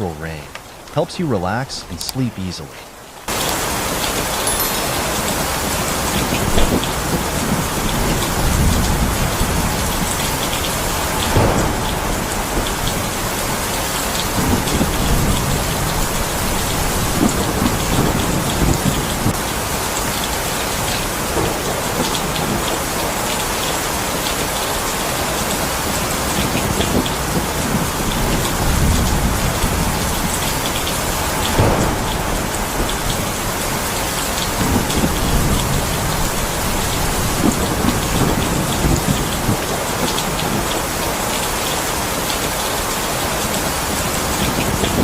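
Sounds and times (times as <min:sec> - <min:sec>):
heavy rain: 0:00.0 - 0:45.0
thunder rumbles: 0:05.0 - 0:19.8, 0:25.4 - 0:41.0.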